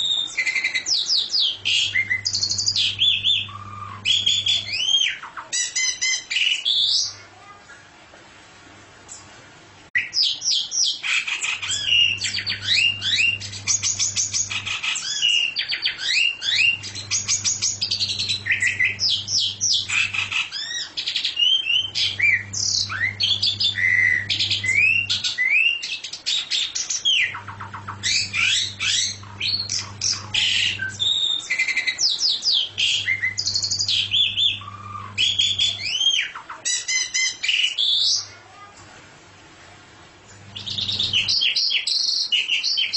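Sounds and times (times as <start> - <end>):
songbird singing: 0.0 - 7.2, 10.0 - 38.3, 40.3 - 42.9
low hum: 1.5 - 4.8, 11.8 - 14.8, 16.5 - 20.4, 21.8 - 25.2, 27.4 - 31.2, 32.6 - 35.8.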